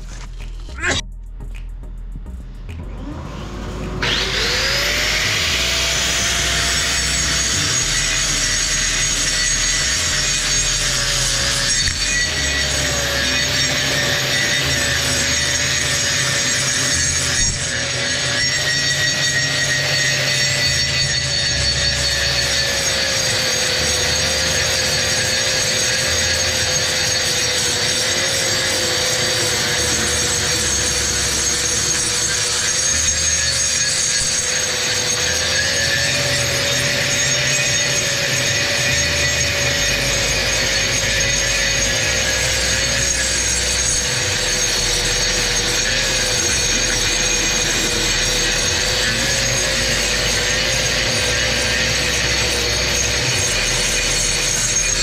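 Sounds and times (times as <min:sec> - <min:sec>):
grinder scraping concrete: 0:00.0 - 0:01.0, 0:02.9 - 0:55.0
electric grinder motor whine: 0:02.7 - 0:55.0.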